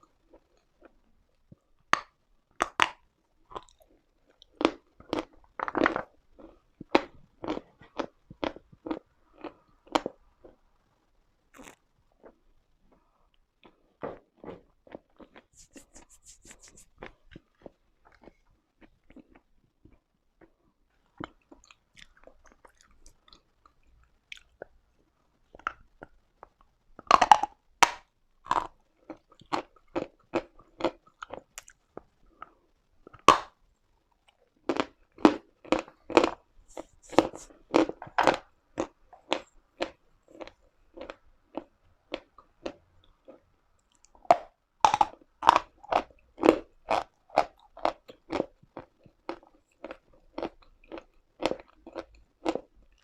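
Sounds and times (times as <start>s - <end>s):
chalk being chewed: 15.1s - 19.4s, 35.6s - 38.1s.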